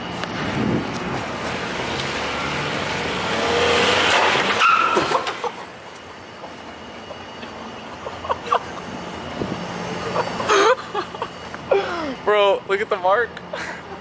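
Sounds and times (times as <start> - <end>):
car engine accelerating: 0.2 - 6.0
car underside bang and scraping: 4.0 - 5.6.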